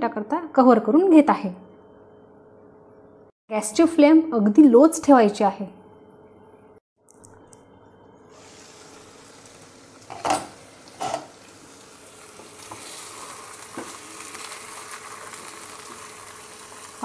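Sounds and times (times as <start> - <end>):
chicken sizzling in oil: 8.3 - 17.0.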